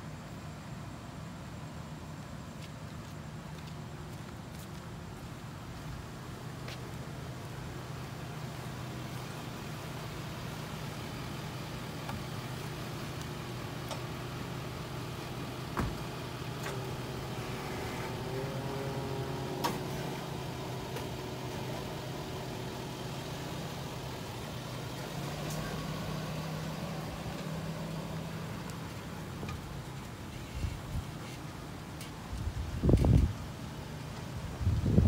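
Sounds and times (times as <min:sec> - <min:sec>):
vehicle engine idling: 0:00.0 - 0:35.0.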